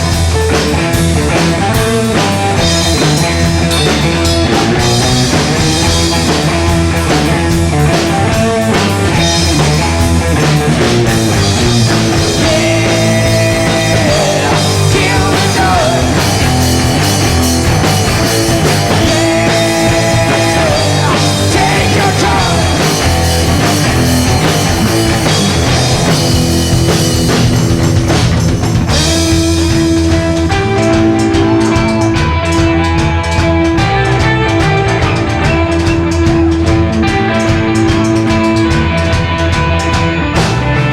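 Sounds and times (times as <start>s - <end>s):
rock band playing live: 0.0s - 40.9s.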